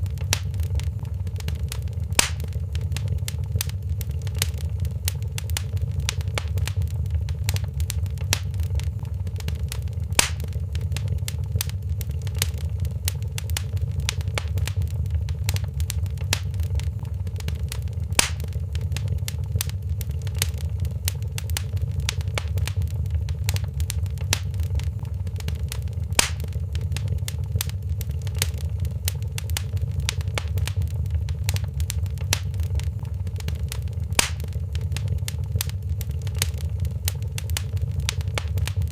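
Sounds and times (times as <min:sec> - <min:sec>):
loud pops of fire: 0:00.0 - 0:38.9
wood fire crackling: 0:00.0 - 0:38.9.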